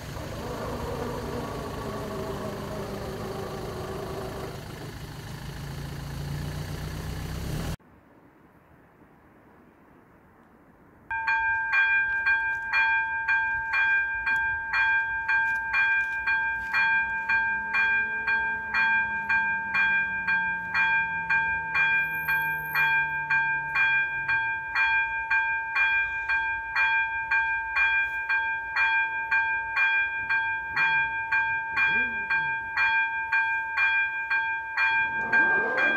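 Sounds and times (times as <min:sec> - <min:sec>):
level crossing warning bell ringing: 0:00.0 - 0:04.8, 0:11.1 - 0:35.9.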